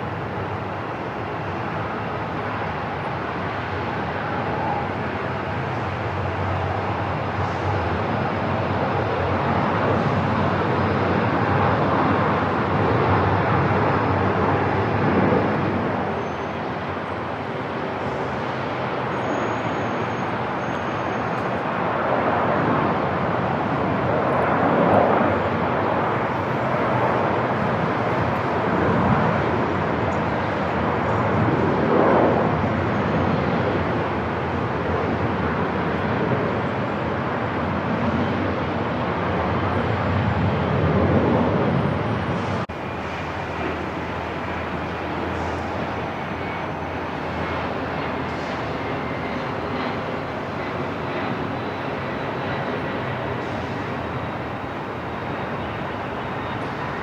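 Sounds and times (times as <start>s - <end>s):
machine and room noise: 42.4s - 57.0s.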